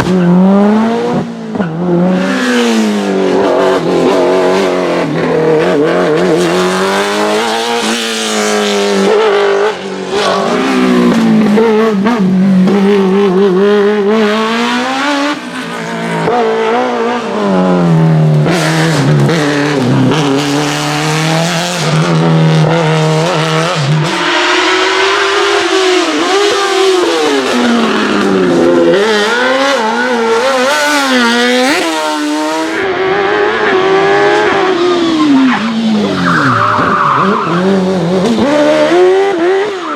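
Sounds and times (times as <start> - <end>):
race car engine revving: 0.0 - 39.9
tyre squeal: 35.0 - 37.9.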